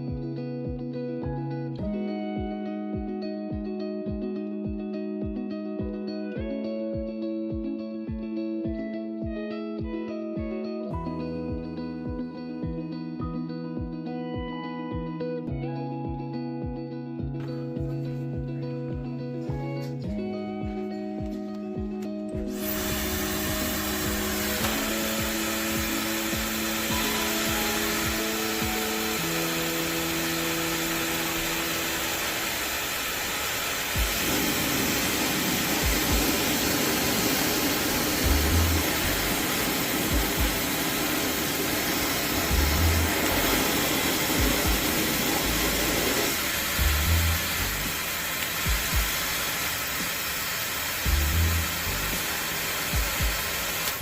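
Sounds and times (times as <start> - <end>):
background music: 0.0 - 32.7, 34.0 - 54.0
hair dryer blowing air: 19.4 - 54.0.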